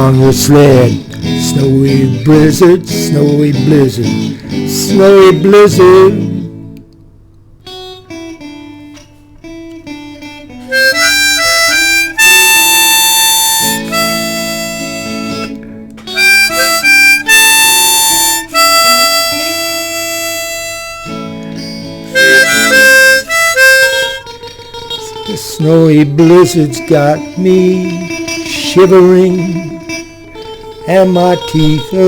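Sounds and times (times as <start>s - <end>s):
picked guitar line: 0.0s - 32.0s
harmonica solo: 7.6s - 32.0s.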